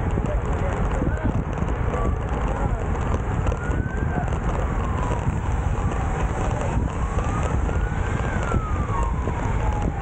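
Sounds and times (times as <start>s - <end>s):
wind rumble on microphone: 0.0s - 10.0s
siren wailing: 3.4s - 10.0s.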